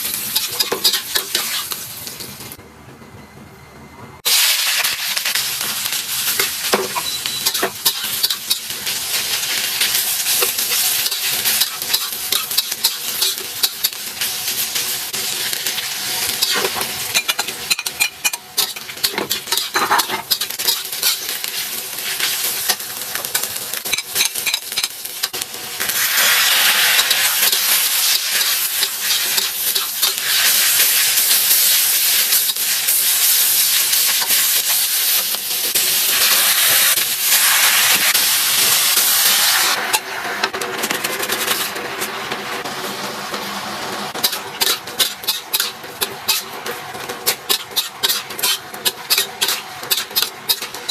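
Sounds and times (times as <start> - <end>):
food sizzling in a hot pan: 0.0 - 2.6, 4.2 - 50.9
spatula scraping metal pan: 47.4 - 50.9.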